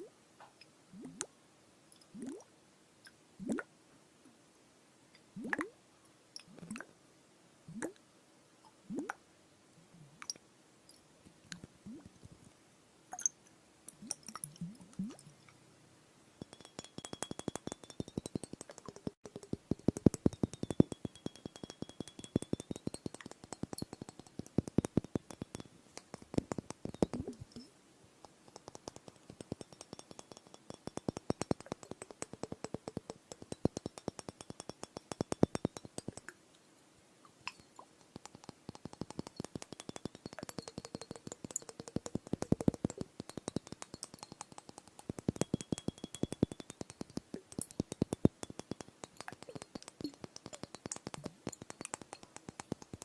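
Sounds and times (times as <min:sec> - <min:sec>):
rapid tapping on glass: 0:13.2 - 0:15.6, 0:16.4 - 0:27.7, 0:28.3 - 0:36.4, 0:37.5 - 0:53.0.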